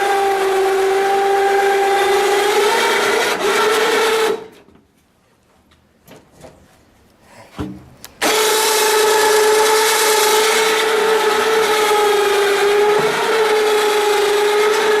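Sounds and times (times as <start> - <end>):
electric winch motor whining: 0.0 - 4.6, 8.2 - 15.0.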